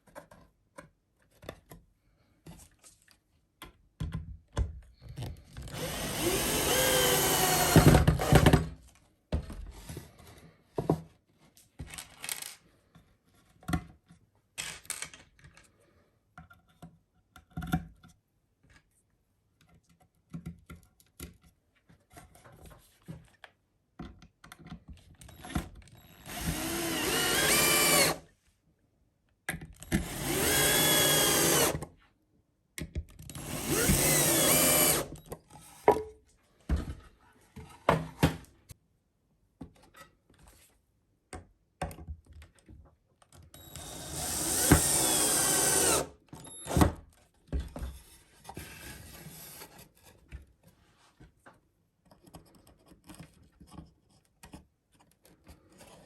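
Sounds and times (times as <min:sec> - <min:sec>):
power drill motor whine: 0:05.7 - 0:08.6, 0:25.3 - 0:28.2, 0:30.0 - 0:31.8, 0:33.3 - 0:35.2, 0:43.6 - 0:46.9.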